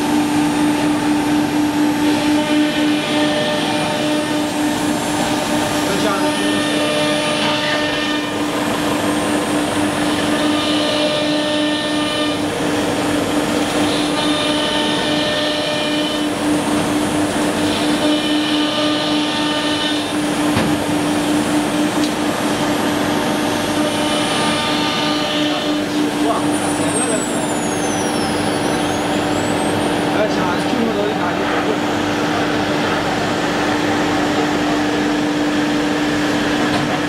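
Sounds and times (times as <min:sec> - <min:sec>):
wood router spindle hum: 0:00.0 - 0:27.8.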